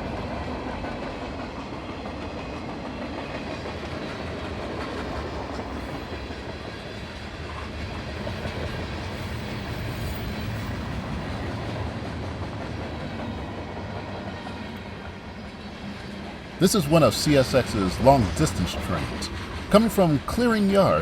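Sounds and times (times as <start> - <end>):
freight train rumbling on rails: 0.0 - 21.0.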